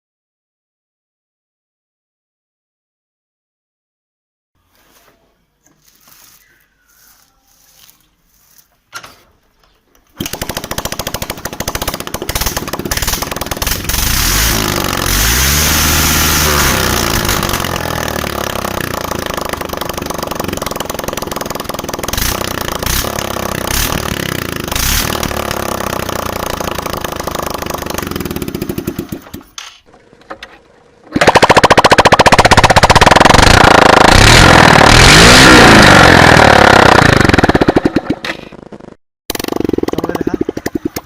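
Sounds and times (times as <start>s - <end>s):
motorcycle engine open exhaust: 10.1s - 29.6s, 31.1s - 41.0s.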